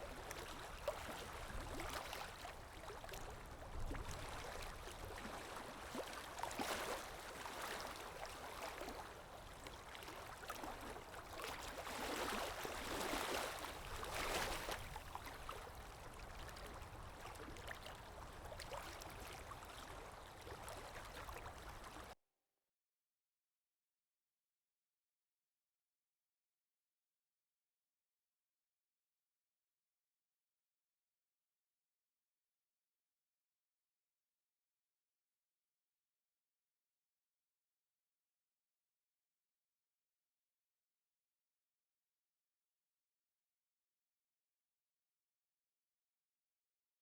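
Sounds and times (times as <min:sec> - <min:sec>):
river water lapping: 0:00.0 - 0:22.1.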